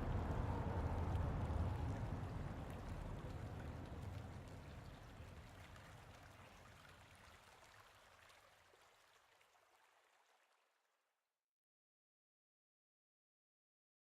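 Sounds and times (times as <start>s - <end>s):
small water drips: 0.0s - 10.8s.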